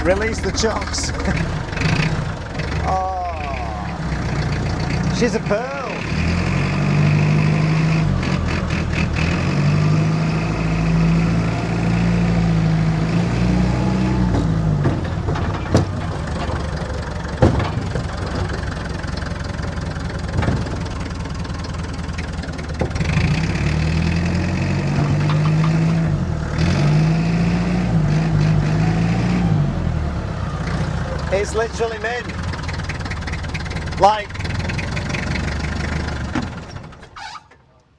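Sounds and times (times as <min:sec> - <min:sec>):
diesel engine revving: 0:00.0 - 0:37.2
sharp knocks: 0:14.3 - 0:18.8, 0:20.2 - 0:21.3.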